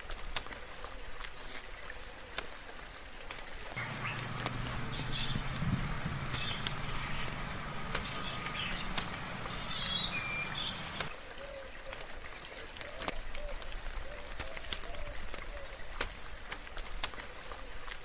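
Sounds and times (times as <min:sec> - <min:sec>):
soft rain falling: 0:00.0 - 0:18.0
water drips: 0:00.0 - 0:18.0
birds chirping and calling: 0:03.8 - 0:11.1
low steady hum: 0:03.8 - 0:11.1
low repeated bird call: 0:03.8 - 0:11.9.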